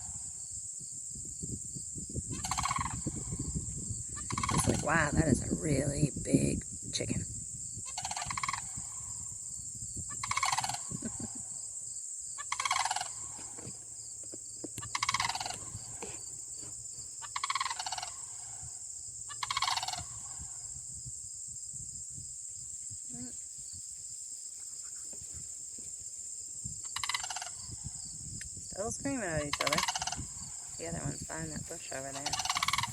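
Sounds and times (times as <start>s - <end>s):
cranes rattling calls: 0.0s - 0.4s, 2.3s - 6.1s, 7.9s - 9.5s, 10.1s - 11.8s, 12.4s - 20.8s, 26.8s - 28.2s, 28.8s - 32.9s.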